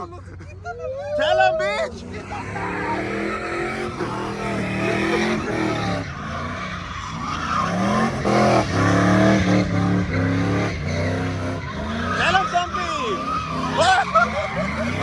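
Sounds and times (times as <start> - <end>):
tires squealing: 0.0 - 15.0
truck engine revving: 1.8 - 15.0.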